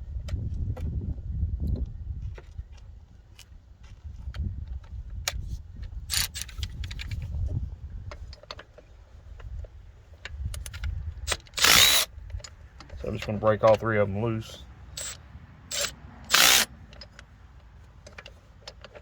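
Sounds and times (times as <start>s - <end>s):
tools rattling: 6.1s - 7.2s, 10.6s - 13.8s, 15.0s - 19.0s.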